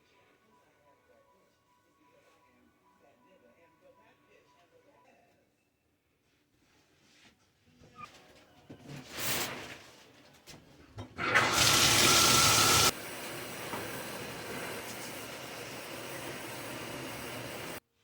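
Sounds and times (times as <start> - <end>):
water rushing: 11.3 - 17.8.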